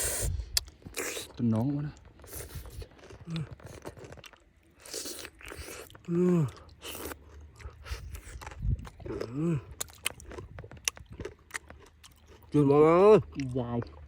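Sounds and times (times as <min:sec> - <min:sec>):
oyster shells crunching and scraping: 0:00.6 - 0:12.6.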